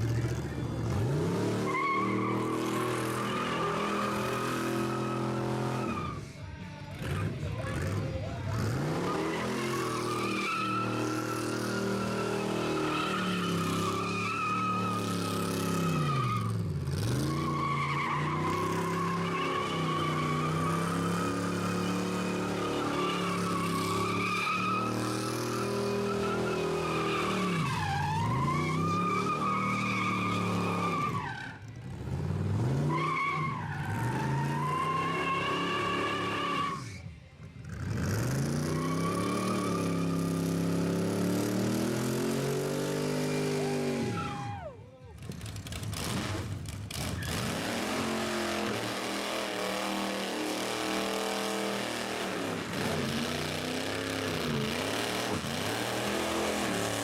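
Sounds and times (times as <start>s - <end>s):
car engine revving: 0.0s - 6.0s, 45.2s - 57.0s
tyres squealing: 1.5s - 6.3s, 8.6s - 31.6s.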